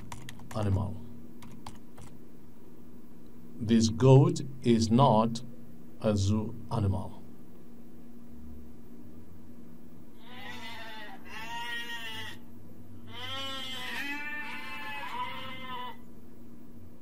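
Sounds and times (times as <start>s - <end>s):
goat bleating: 10.2s - 12.4s, 13.1s - 16.0s.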